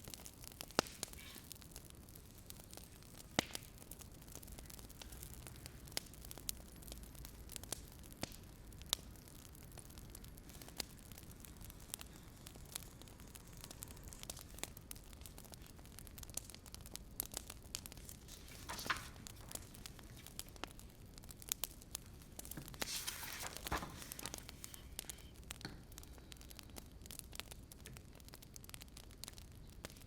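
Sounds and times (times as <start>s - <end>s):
wood fire crackling: 0.0s - 30.0s
fire hissing flare: 0.1s - 6.5s, 7.2s - 25.1s.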